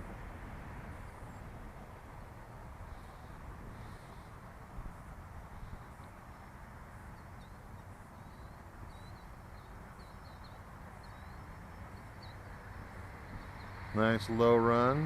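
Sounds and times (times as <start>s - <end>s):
low outdoor rumble: 0.0s - 15.0s
small bird chirping: 7.1s - 14.3s.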